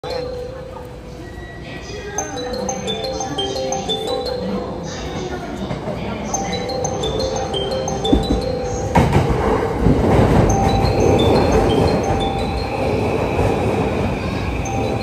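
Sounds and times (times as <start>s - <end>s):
high chiming tune: 0.0s - 15.0s
train wheels rumbling on rails: 7.9s - 15.0s.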